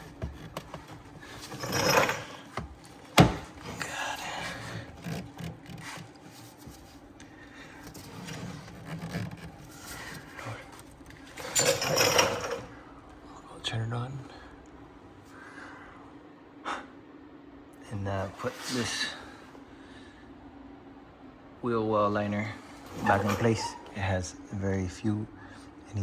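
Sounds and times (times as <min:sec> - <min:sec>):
plastic rubbing and scraping: 0:00.0 - 0:11.4.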